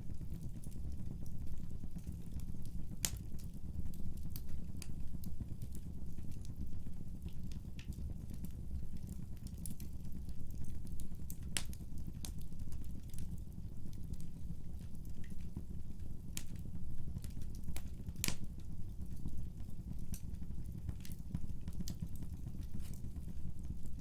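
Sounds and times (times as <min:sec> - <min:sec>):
fire low rumble: 0:00.0 - 0:24.0
wood crackles and pops: 0:00.0 - 0:24.0.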